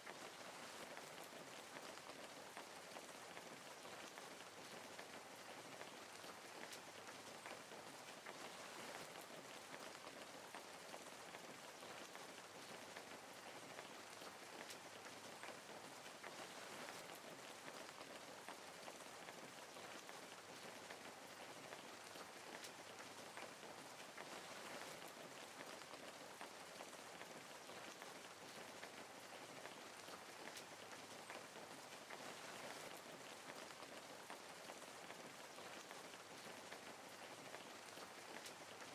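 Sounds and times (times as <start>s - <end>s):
soft rain pattering on leaves: 0.0s - 38.9s.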